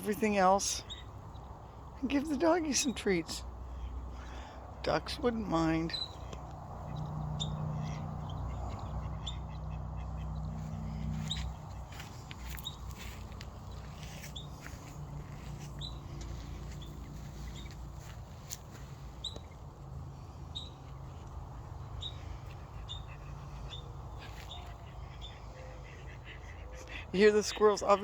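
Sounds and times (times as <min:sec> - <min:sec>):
steady low rumble: 0:00.8 - 0:24.2
ground squirrels alarm chirps: 0:04.2 - 0:19.6, 0:20.4 - 0:21.2.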